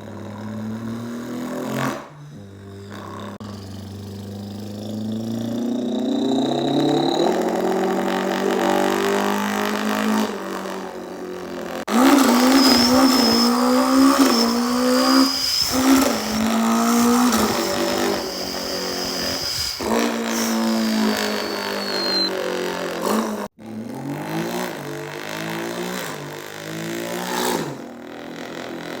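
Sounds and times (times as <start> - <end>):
person imitating car engine revving: 0.0 - 13.2
thin high whine: 2.4 - 8.4, 12.0 - 22.4.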